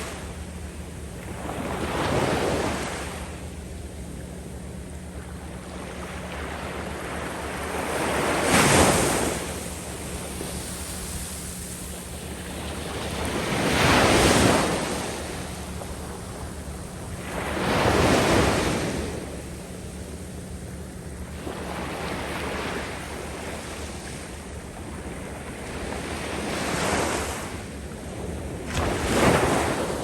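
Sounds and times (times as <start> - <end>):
waves breaking on beach: 0.0 - 0.3, 1.2 - 3.4, 5.2 - 19.7, 21.3 - 30.0.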